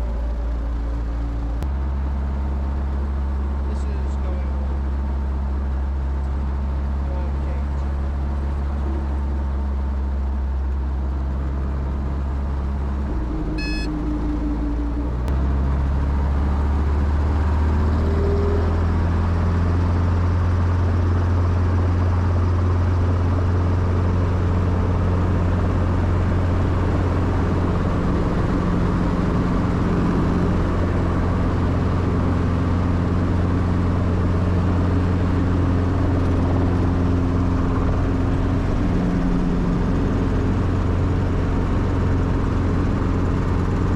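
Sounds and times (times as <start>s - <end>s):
helicopter engine and rotor drone: 0.0s - 43.9s
high beep: 13.6s - 13.9s.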